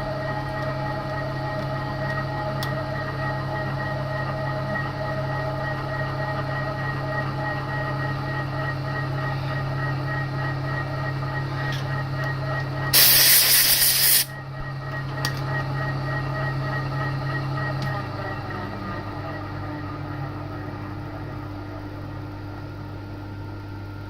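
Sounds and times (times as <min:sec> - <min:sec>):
milling machine hum and whine: 0:00.0 - 0:24.0
loud hiss: 0:13.0 - 0:14.3.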